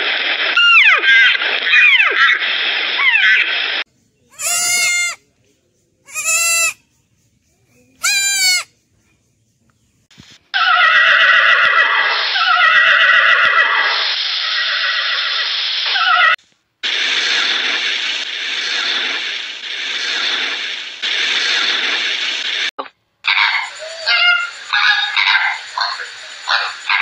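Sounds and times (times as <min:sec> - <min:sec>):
goat kids bleating: 0:04.3 - 0:05.2, 0:06.1 - 0:06.8, 0:08.0 - 0:08.7
overlapping animal calls: 0:04.3 - 0:05.2, 0:06.1 - 0:06.8, 0:08.0 - 0:08.7, 0:23.2 - 0:27.0.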